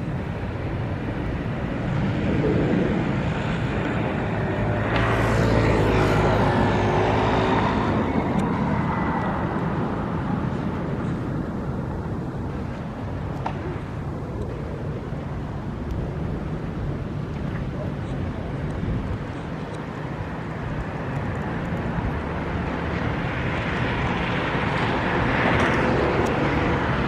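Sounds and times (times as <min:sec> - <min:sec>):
city traffic noise: 0:00.0 - 0:27.0
engine hum passing: 0:01.6 - 0:10.8.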